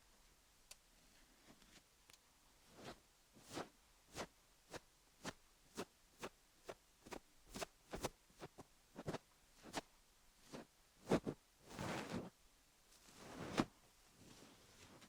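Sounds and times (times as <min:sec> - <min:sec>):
fluff brushing over microphone: 0:02.7 - 0:04.3, 0:07.5 - 0:09.8, 0:10.5 - 0:12.4, 0:13.1 - 0:15.0.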